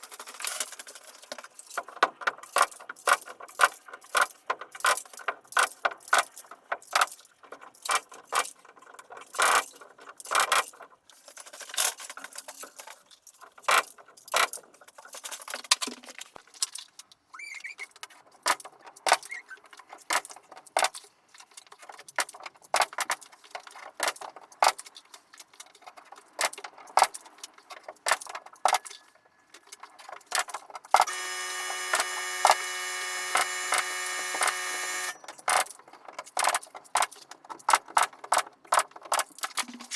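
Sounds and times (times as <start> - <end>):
tools and lumber clicking and knocking: 0.0 - 17.1, 18.0 - 29.0
electric power tool running: 31.0 - 35.2.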